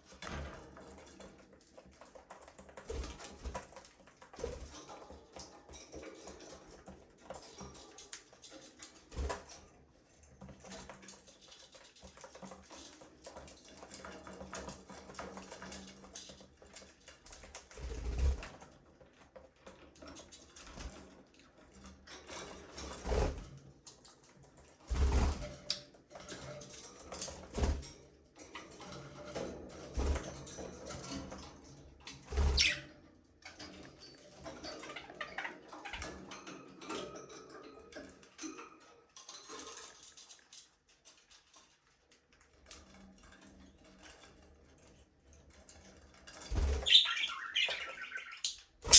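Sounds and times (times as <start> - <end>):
budgerigars chattering: 46.8 - 48.6.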